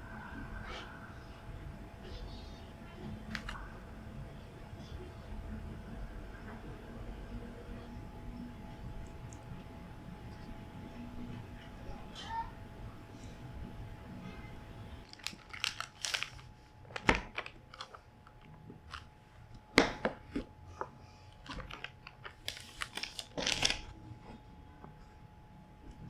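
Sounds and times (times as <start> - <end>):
faint steady hum: 0.0 - 26.0
crinkling and rustling: 3.0 - 3.6, 15.0 - 25.1.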